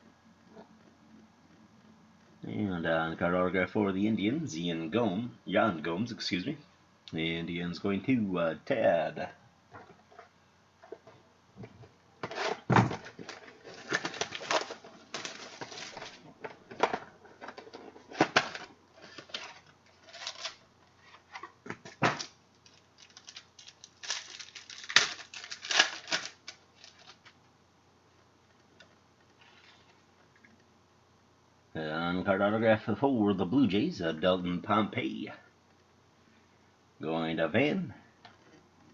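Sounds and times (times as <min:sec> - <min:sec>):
trading cards rustling and clicking: 0:12.2 - 0:27.4.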